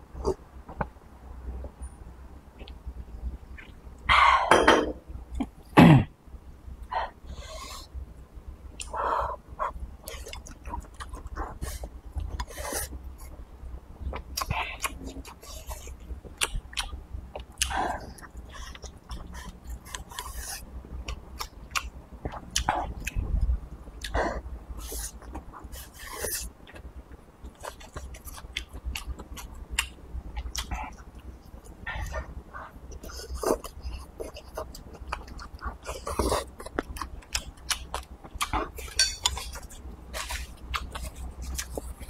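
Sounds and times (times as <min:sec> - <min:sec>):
person chewing food: 0:09.6 - 0:13.4, 0:14.0 - 0:23.4, 0:24.0 - 0:24.2, 0:24.8 - 0:42.0.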